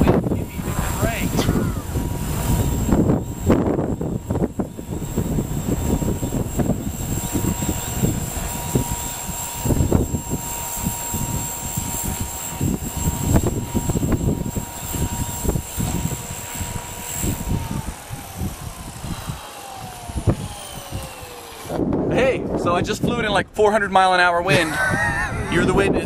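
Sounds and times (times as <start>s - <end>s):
rc helicopter motor whine: 0.0s - 23.0s, 24.5s - 26.0s
wind buffeting microphone: 0.0s - 26.0s.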